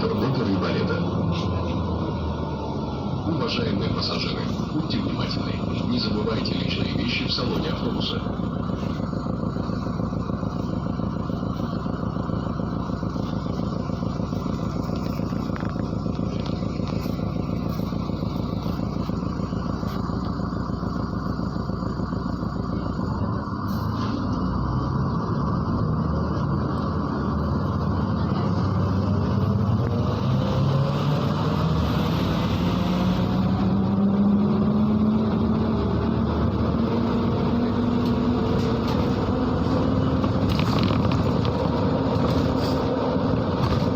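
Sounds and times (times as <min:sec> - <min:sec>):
bus engine and road noise: 0:00.0 - 0:43.9
bus engine drone rising in pitch: 0:00.0 - 0:43.9.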